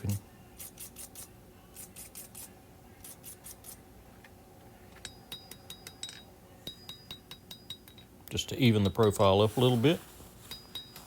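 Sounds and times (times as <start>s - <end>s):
metallic ring: 5.0s - 8.1s, 10.4s - 11.0s.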